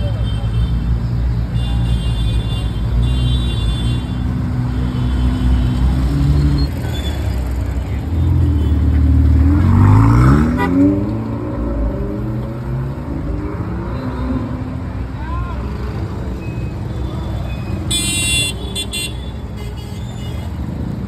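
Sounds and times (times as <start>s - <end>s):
car engine droning and revving: 7.6s - 16.8s.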